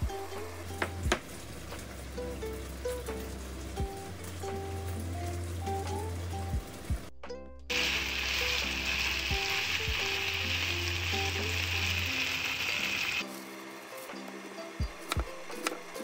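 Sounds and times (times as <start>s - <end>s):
meat sizzling in a frying pan: 7.7s - 13.4s.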